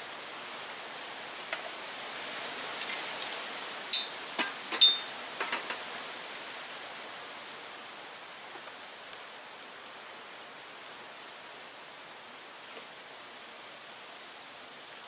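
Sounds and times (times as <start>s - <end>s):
steady hiss: 0.0s - 15.0s
small metal parts ringing: 4.0s - 4.2s, 4.8s - 5.1s.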